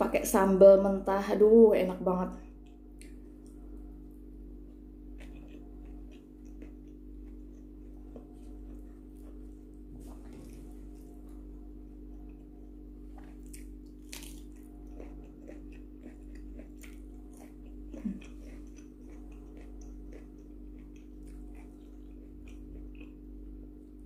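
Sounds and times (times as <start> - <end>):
low electrical hum: 0.0 - 24.0
mouth chewing and smacking: 2.6 - 3.6, 5.1 - 11.4, 12.1 - 23.9.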